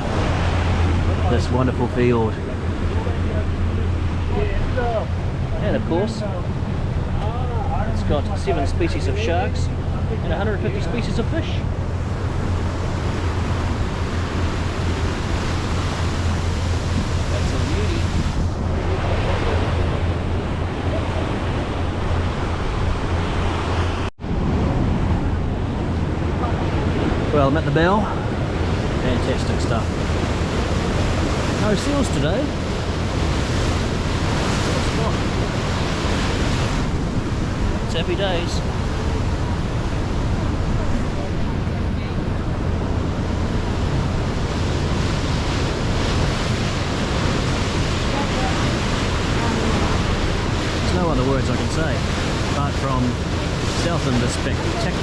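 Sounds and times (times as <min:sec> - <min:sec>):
water noise: 0:00.0 - 0:55.0
wind rushing over microphone: 0:00.0 - 0:55.0.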